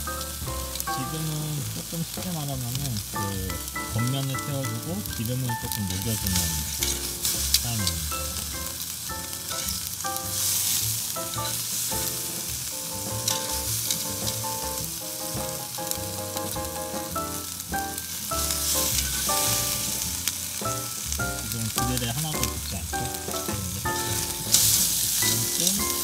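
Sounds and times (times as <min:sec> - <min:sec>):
steak sizzling on grill: 0:00.0 - 0:26.0
fat spitting on fire: 0:23.3 - 0:26.0.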